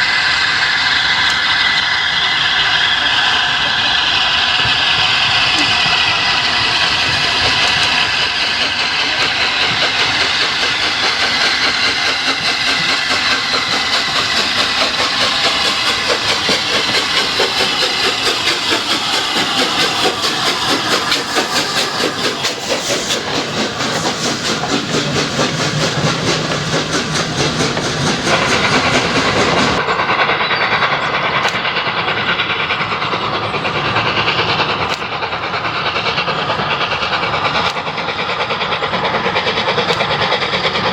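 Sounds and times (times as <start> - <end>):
steam hissing: 0.0 - 40.9
steam locomotive passing: 0.0 - 40.9.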